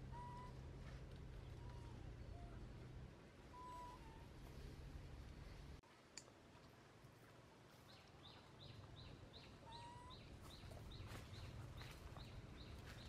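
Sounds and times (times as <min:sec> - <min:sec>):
small bird calling faintly: 0:03.5 - 0:04.7.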